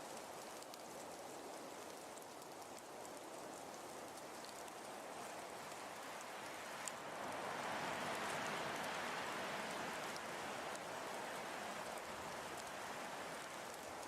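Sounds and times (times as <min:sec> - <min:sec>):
faint ticks: 0:00.0 - 0:07.4, 0:11.8 - 0:14.0.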